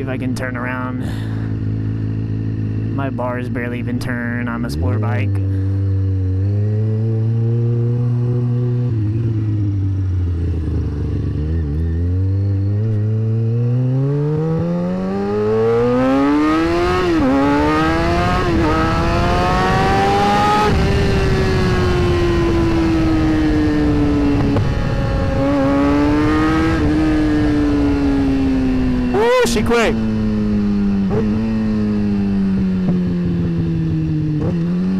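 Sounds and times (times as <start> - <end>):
motorcycle engine revving: 1.0 - 3.2, 3.8 - 29.2, 29.9 - 34.9.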